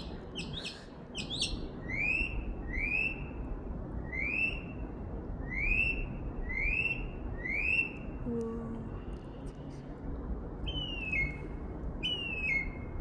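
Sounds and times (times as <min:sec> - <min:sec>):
bird singing: 0:00.0 - 0:03.2, 0:10.7 - 0:12.9.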